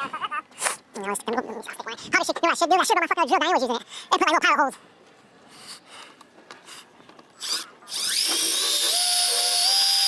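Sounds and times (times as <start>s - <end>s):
electric drill whining: 7.4s - 10.0s.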